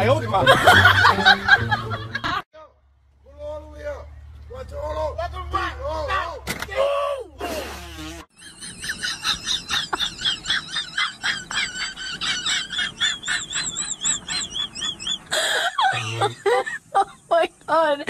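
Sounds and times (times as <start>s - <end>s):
birds chirping: 8.4s - 18.0s.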